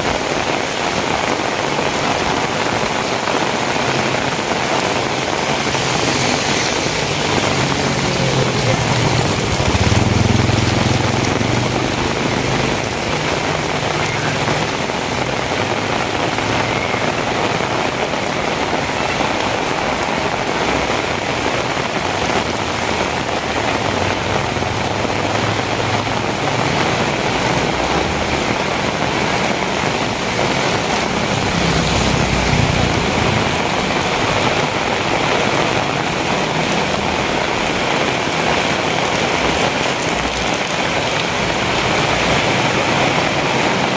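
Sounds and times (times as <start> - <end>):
heavy rain on hard surfaces: 0.0 - 43.9.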